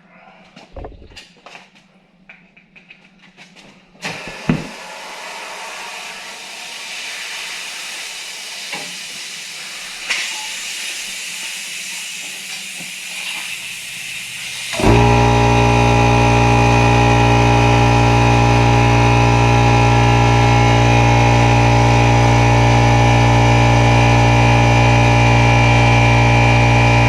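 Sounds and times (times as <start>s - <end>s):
compressed air hissing: 4.0s - 22.7s.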